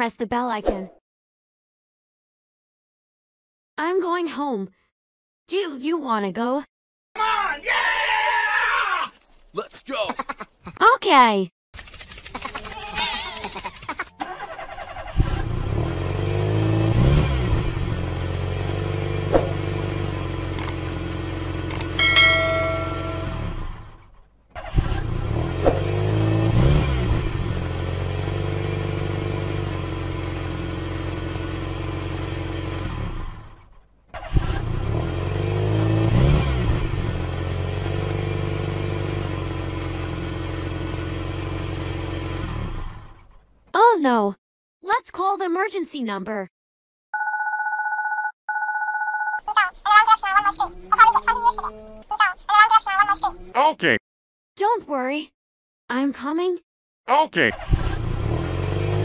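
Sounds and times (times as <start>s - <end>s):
car engine revving: 14.2s - 43.4s, 57.5s - 59.0s.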